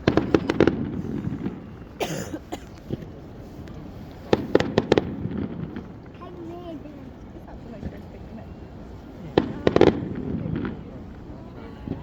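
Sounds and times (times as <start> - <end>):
firework hiss: 0.0 - 6.2
fireworks bangs and crackles: 0.0 - 12.0.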